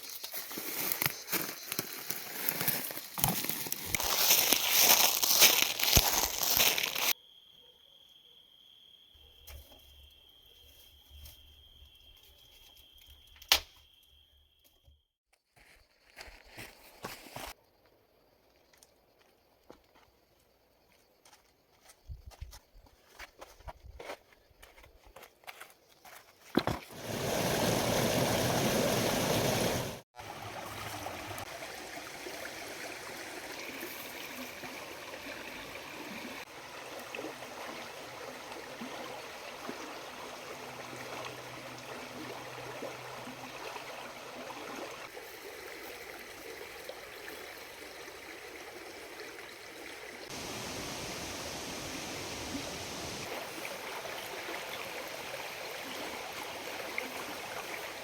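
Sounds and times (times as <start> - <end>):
close rush of water: 26.9 - 58.0
river water rushing: 27.0 - 31.5, 50.3 - 57.8.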